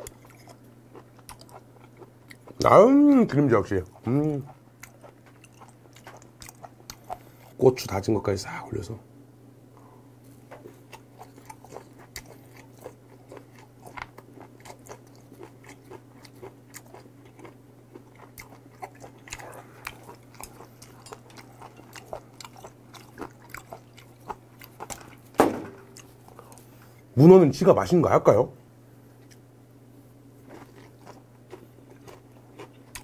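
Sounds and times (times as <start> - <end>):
wet chewing: 0.0 - 7.6, 10.5 - 27.1, 30.4 - 33.0.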